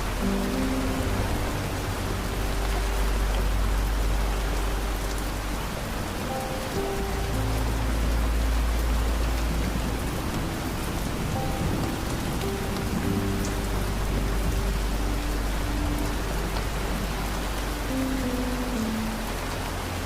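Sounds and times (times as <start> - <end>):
deep low rumble: 0.0 - 20.0
soft held music notes: 0.0 - 20.0
steady rain falling: 0.0 - 20.0.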